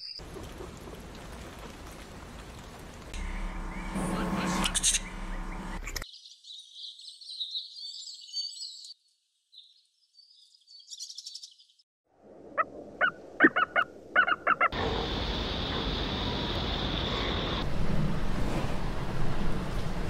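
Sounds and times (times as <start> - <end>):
bird chirping: 4.7 - 11.8.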